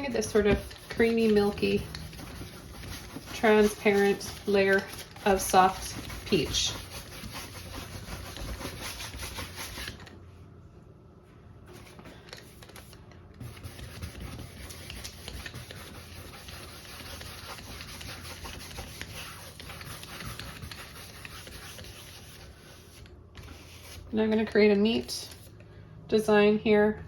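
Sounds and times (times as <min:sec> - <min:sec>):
paintbrush scrubbing on canvas: 0:00.0 - 0:10.0, 0:12.6 - 0:24.1.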